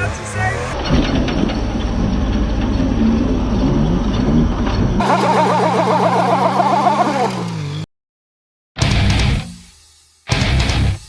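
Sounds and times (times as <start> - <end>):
fluttering sound over engine: 5.0 - 7.8
truck engine running: 5.0 - 7.8.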